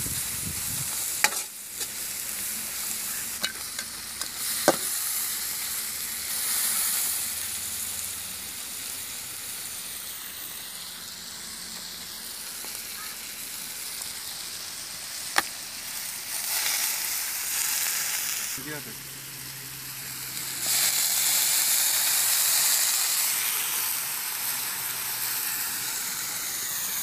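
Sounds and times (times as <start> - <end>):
vegetables sizzling in oil: 0.0 - 27.0
ladle stirring and clinking on pan: 1.2 - 2.0, 3.4 - 4.0.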